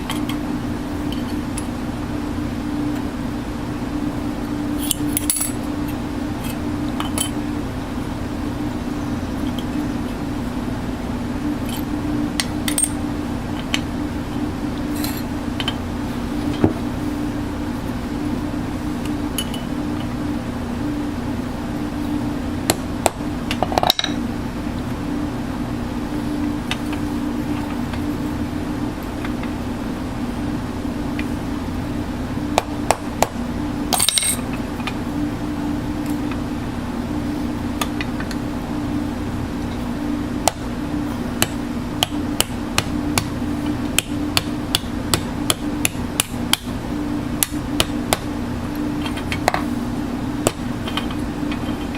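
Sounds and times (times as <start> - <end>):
steady mechanical hum: 0.0 - 51.9
ringing metallic clink: 34.0 - 34.4.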